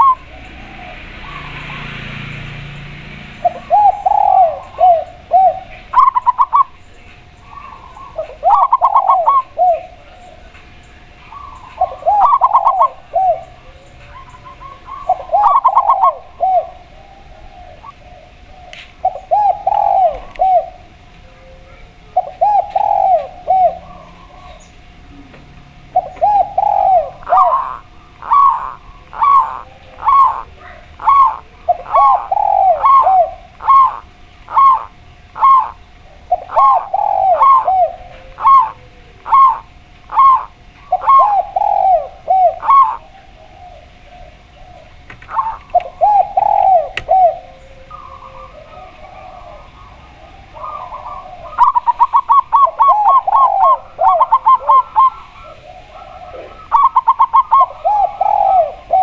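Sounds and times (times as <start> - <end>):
dove cooing: 0.0 - 59.0
higher evenly spaced dove notes: 0.0 - 59.0.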